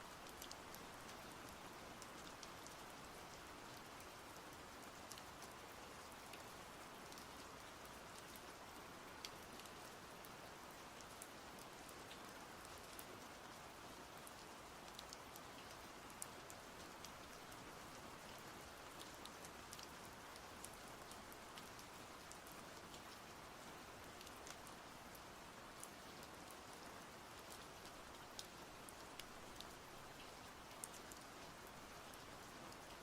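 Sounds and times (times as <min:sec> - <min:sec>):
soft rain: 0:00.0 - 0:33.0.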